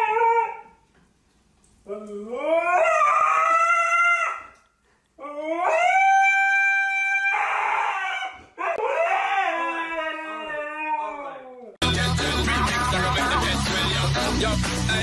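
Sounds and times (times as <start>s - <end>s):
dog howling: 0.0s - 0.7s, 1.9s - 4.6s, 5.2s - 11.8s.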